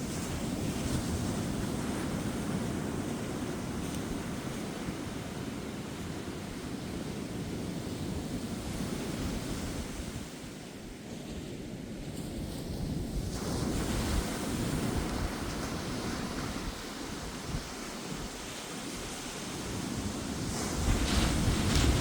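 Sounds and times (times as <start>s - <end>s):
ocean waves breaking on beach: 0.0s - 22.0s
wind buffeting microphone: 0.0s - 22.0s.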